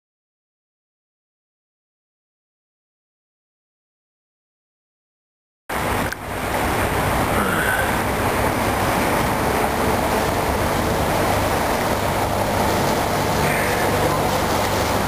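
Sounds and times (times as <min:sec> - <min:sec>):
heavy low rumble: 0:05.7 - 0:15.0
water moving along boat: 0:05.7 - 0:15.0.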